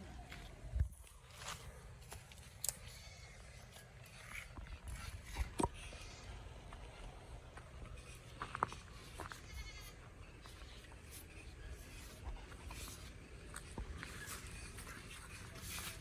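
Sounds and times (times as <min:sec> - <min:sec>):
faint animal bleat: 0:02.8 - 0:04.3, 0:05.7 - 0:06.5, 0:09.2 - 0:10.1.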